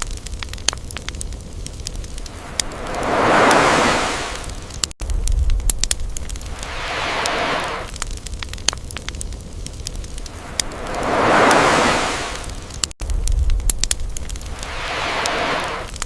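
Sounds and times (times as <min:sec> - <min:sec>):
campfire crackling and popping: 0:00.0 - 0:16.0
ocean waves washing in: 0:01.9 - 0:04.9, 0:06.2 - 0:08.0, 0:09.9 - 0:13.0, 0:14.2 - 0:16.0.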